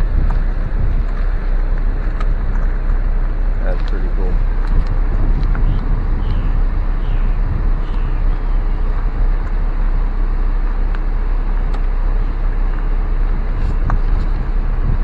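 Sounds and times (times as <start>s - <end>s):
car rolling slowly: 0.0s - 15.0s.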